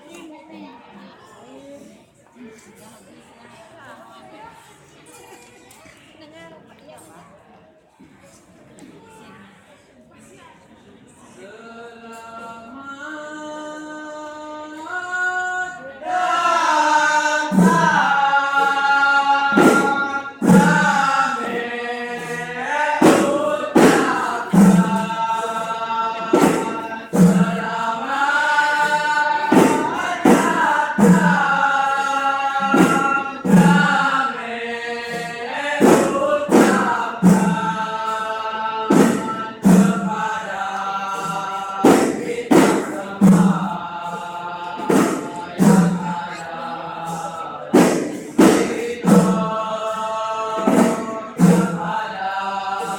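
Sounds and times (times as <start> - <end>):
group singing devotional song: 11.2 - 52.9
drum strokes: 16.0 - 52.9.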